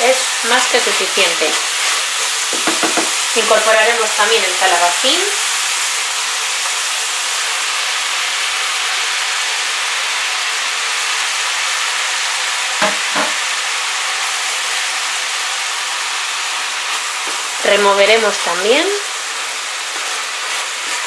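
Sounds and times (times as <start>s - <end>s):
food sizzling in hot oil: 0.0s - 21.0s
sharp knock or scrape: 12.8s - 13.4s
wooden spatula stirring: 19.8s - 21.0s.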